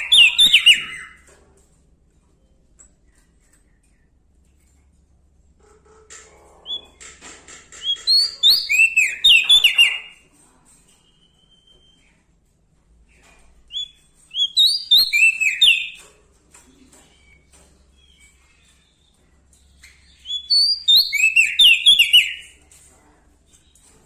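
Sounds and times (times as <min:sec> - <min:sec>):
songbird chirping: 0:00.0 - 0:01.3, 0:07.7 - 0:10.3, 0:13.1 - 0:24.0.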